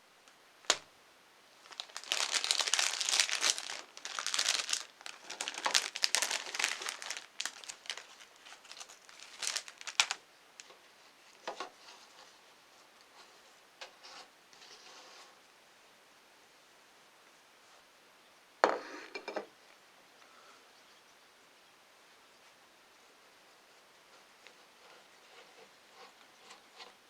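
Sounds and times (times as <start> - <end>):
plastic packaging crinkling: 1.6 - 10.2.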